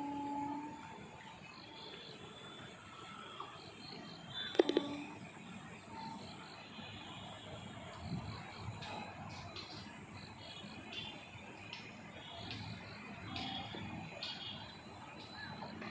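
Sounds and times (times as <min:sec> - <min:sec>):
long low tone: 0:00.0 - 0:01.0
crickets chirping: 0:00.0 - 0:15.9
frogs: 0:00.0 - 0:15.9.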